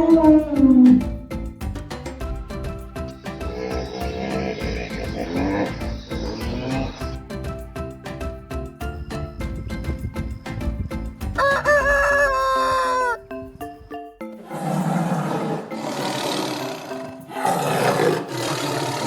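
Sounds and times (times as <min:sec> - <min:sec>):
rough animal calls: 0:00.0 - 0:01.2, 0:03.1 - 0:07.2, 0:09.2 - 0:13.3, 0:14.4 - 0:19.0
background music with plucked notes: 0:00.0 - 0:19.0
rooster crowing: 0:11.4 - 0:13.3.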